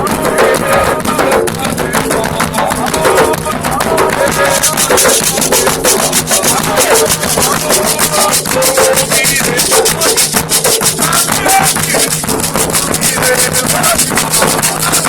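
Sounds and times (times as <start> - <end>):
hand drums playing fast rhythm: 0.0 - 15.0
shaken rattle hissing: 4.6 - 15.0.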